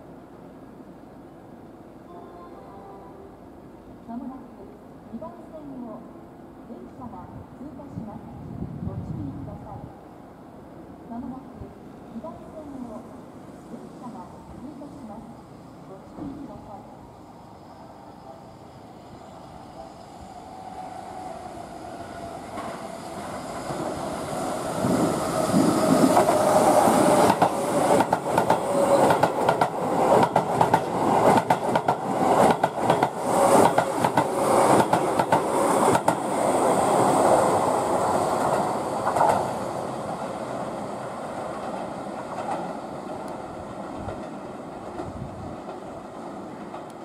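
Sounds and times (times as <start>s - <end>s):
train passing at speed: 0.0s - 47.0s
wheels clickety-clack over rail joints: 24.8s - 36.3s, 38.4s - 39.7s, 41.5s - 47.0s.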